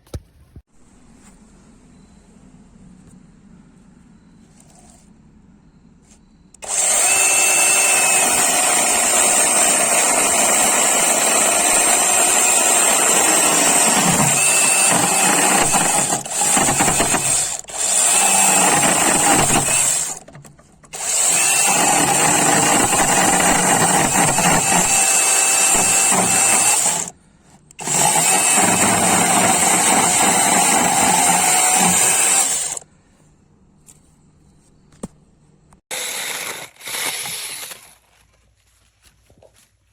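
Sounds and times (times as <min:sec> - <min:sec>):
mini chainsaw running: 0:06.6 - 0:20.3, 0:20.9 - 0:27.2, 0:27.8 - 0:32.8, 0:35.9 - 0:38.0.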